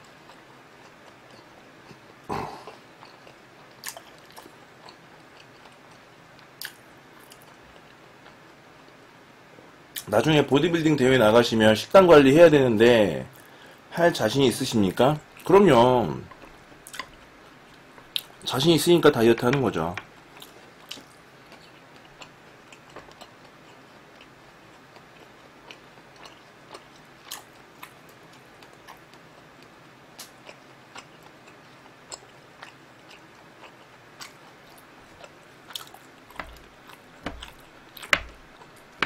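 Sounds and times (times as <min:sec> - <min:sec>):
close chewing of meat: 0:19.4 - 0:39.0
chopsticks clicking on platter: 0:36.4 - 0:38.4.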